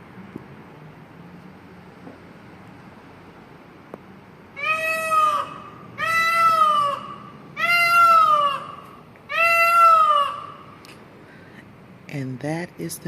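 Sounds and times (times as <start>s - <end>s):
peacock calling: 4.5s - 10.9s
person speaking: 12.1s - 13.0s.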